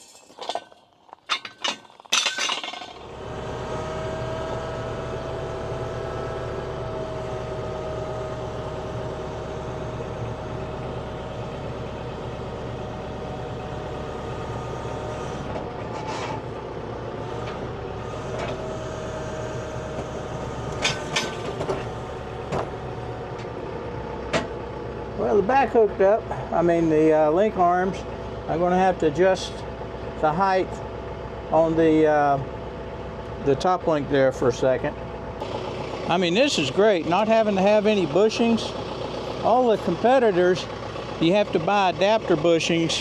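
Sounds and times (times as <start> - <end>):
tractor diesel engine idling: 1.6 - 43.0.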